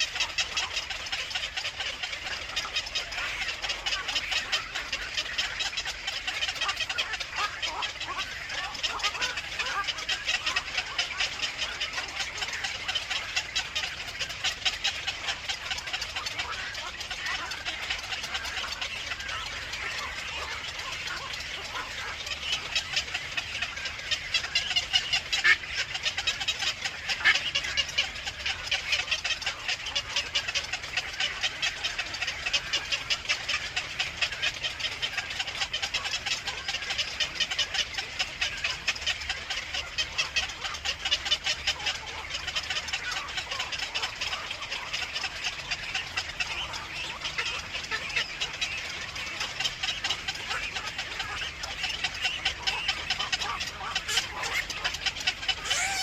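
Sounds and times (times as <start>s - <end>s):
birds chattering at a nest: 0.0s - 56.0s.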